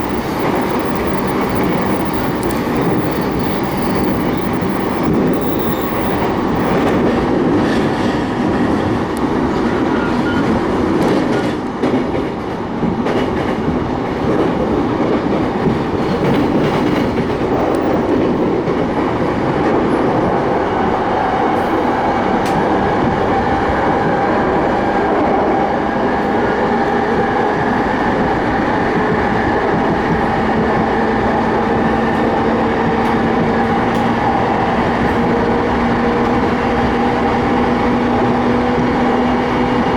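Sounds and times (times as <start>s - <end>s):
scattered clicks: 0.0s - 7.2s, 15.6s - 18.8s
train wheels rumbling on rail: 0.0s - 39.9s.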